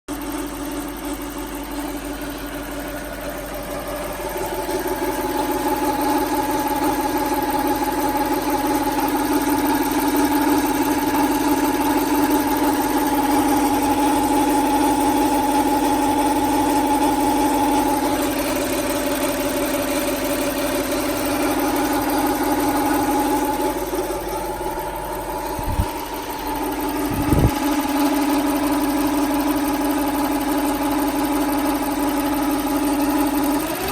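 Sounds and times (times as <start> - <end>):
car engine idling: 0.1 - 33.9
low thumps: 25.3 - 27.6.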